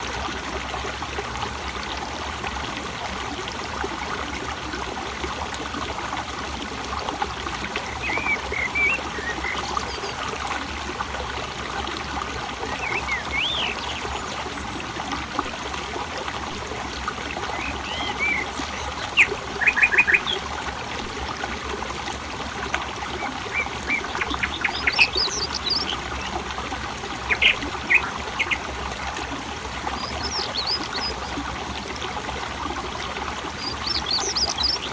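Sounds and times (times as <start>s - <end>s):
water trickling: 0.0s - 34.9s
birds chirping: 7.7s - 10.1s, 12.6s - 14.2s, 17.5s - 20.4s, 23.1s - 28.6s, 29.9s - 31.2s, 33.6s - 34.9s.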